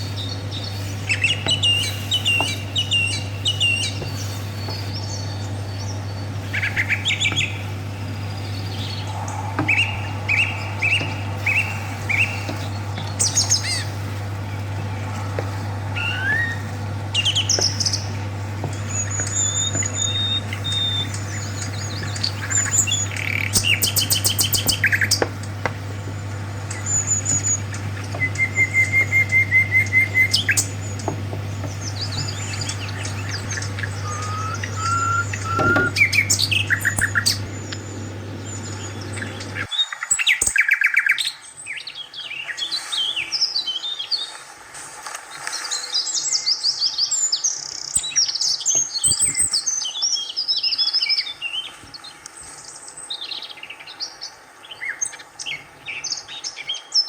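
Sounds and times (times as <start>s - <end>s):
steady low hum: 0.0s - 39.7s
birds chirping and whistling: 0.0s - 44.2s.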